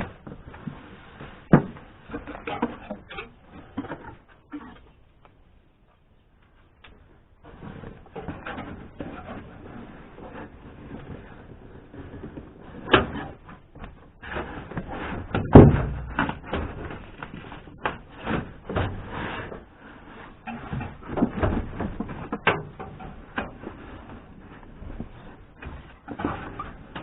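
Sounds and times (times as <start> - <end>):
heavy thump: 15.3 - 16.8.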